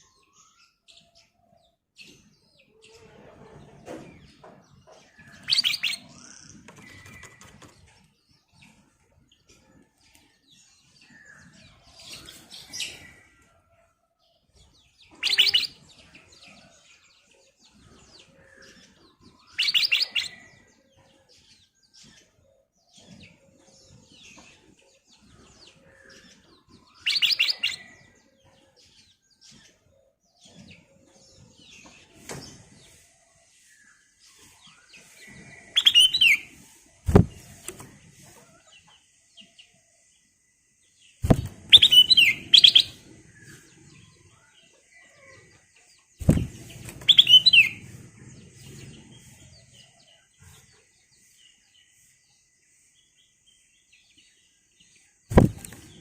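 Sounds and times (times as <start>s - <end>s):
bird twittering: 5.4s - 7.4s, 35.8s - 36.5s, 41.2s - 43.0s, 46.2s - 47.8s
bird singing whistled phrases: 35.8s - 36.4s, 41.7s - 43.0s, 47.1s - 47.8s.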